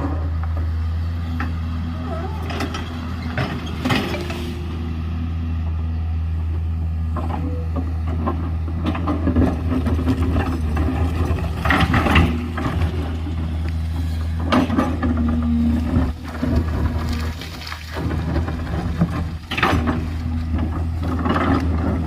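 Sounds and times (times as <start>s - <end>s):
diesel engine running: 0.0s - 22.0s
bucket scraping and clanking: 2.3s - 4.8s, 7.1s - 22.0s.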